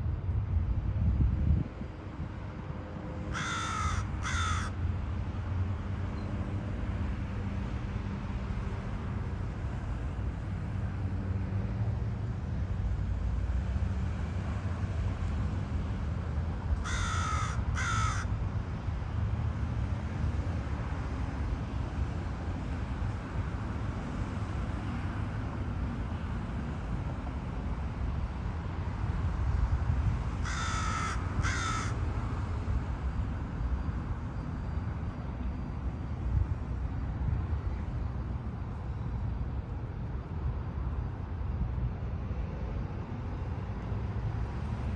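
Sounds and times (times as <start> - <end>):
crow cawing: 3.3 - 4.8, 16.8 - 18.3, 30.4 - 32.0.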